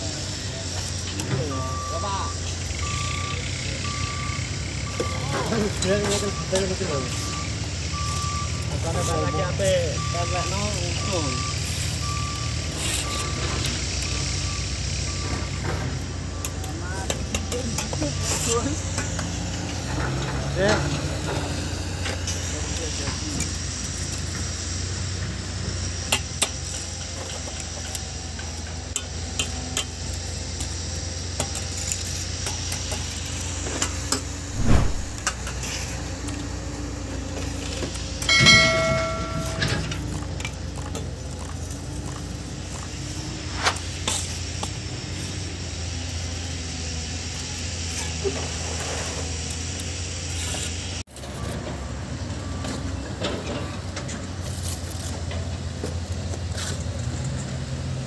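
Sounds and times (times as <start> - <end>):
heavy thud: 34.5 - 35.3
low rumble: 34.5 - 35.3
short chiming sound effect: 38.3 - 39.9.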